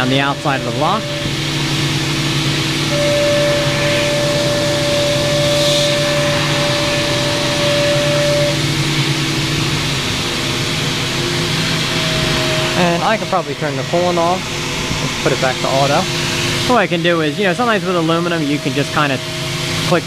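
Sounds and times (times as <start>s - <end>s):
milling cutting tone: 0.0s - 9.1s, 11.0s - 16.1s
machine hum and hiss: 0.0s - 20.0s.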